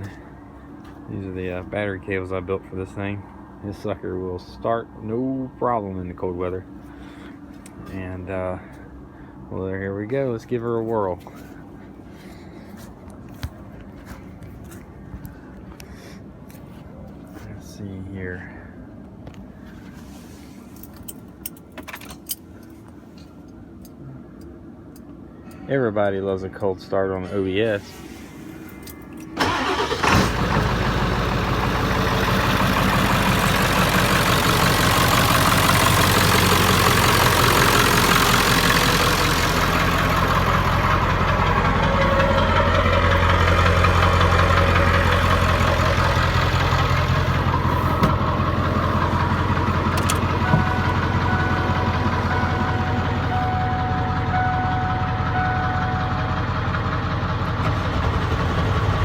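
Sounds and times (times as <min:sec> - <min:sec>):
diesel engine starting and idling: 0:29.1 - 0:59.0
harsh high-pitched engine clatter: 0:29.4 - 0:59.0.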